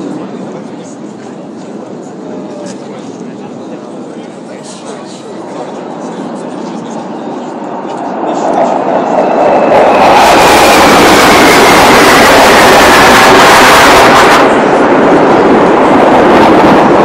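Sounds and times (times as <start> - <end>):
military jet passing overhead: 5.3 - 17.0.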